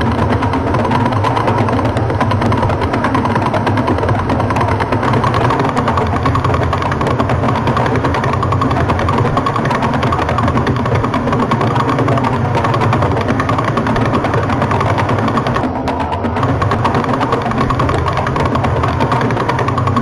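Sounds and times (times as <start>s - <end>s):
rapid pulses: 0.0s - 20.0s
steady tone: 5.0s - 19.5s.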